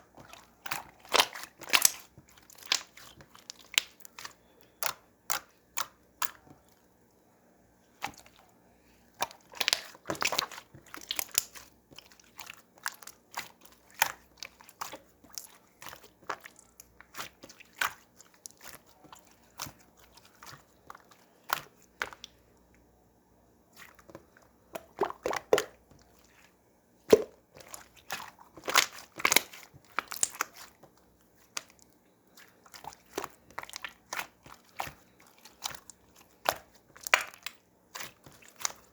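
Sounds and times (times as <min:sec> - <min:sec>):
slime squished by hand: 0:00.1 - 0:06.6, 0:09.1 - 0:22.4, 0:23.7 - 0:38.9.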